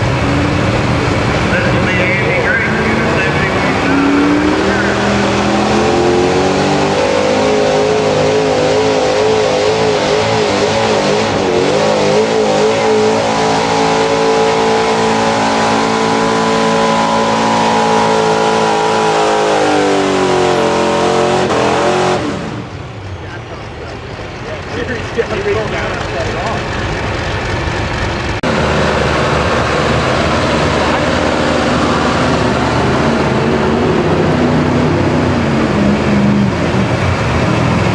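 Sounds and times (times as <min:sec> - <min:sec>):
truck engine at full throttle: 0:00.0 - 0:37.9.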